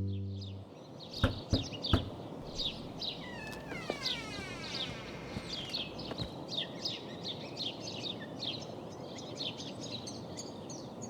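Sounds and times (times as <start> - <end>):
birds chirping: 0.0 - 9.0
outdoor background noise: 0.0 - 11.0
falling bird call: 1.2 - 6.4
short knocks: 1.2 - 6.4.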